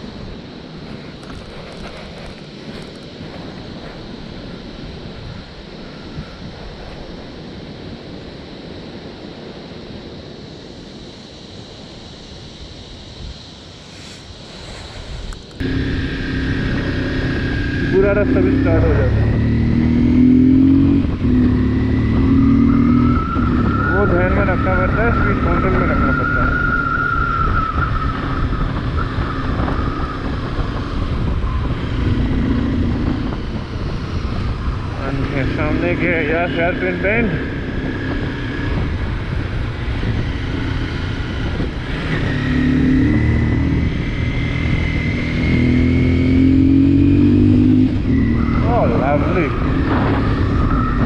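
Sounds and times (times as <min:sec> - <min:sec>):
faint steady whine: 0:00.0 - 0:45.3
wind buffeting microphone: 0:14.3 - 0:51.0
motorcycle engine running: 0:15.2 - 0:51.0.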